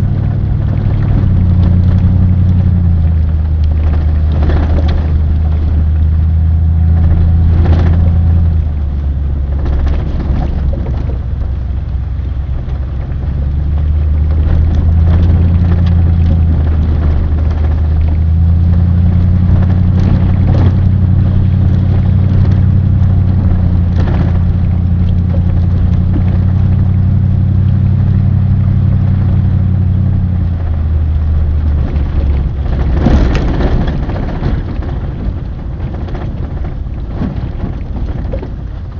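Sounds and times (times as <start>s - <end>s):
vehicle engine and road drone: 0.0s - 38.9s.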